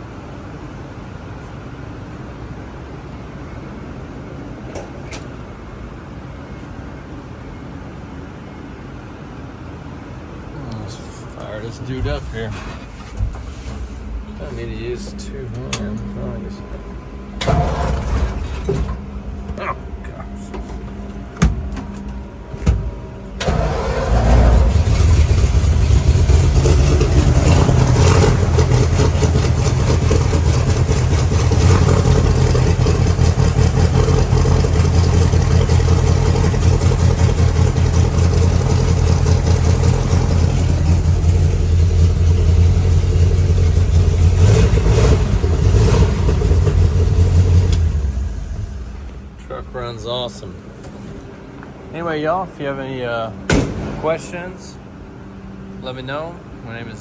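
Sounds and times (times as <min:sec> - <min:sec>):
engine starting and running: 0:10.7 - 0:51.4.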